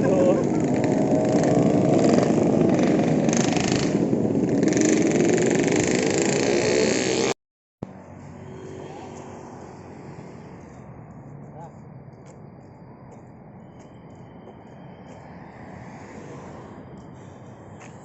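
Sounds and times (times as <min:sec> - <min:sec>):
motorcycle engine and road rumble: 0:00.0 - 0:11.7.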